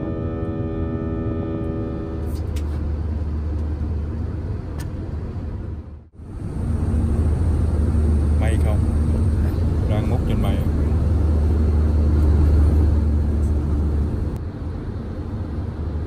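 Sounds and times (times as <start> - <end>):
sustained musical chord: 0.0 - 3.2
jet engine cabin rumble: 0.0 - 16.0.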